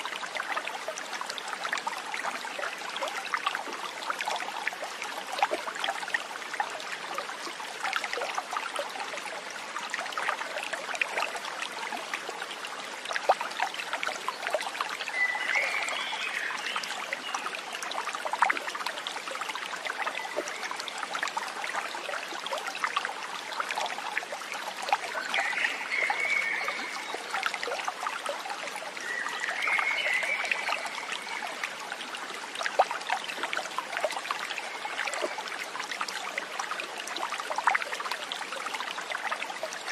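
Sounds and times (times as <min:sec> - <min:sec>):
stream trickling over stones: 0:00.0 - 0:39.9.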